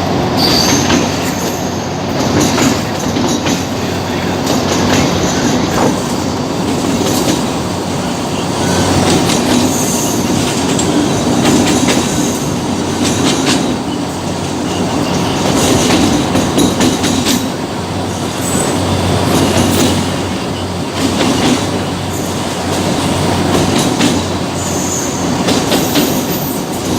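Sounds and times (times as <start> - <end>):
train rumbling on track: 0.0 - 26.9
wheels clicking over rail joints: 9.0 - 17.6.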